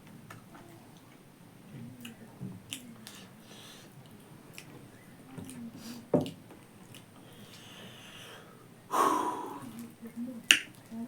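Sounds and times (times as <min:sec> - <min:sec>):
breathy noise: 0:07.2 - 0:09.9.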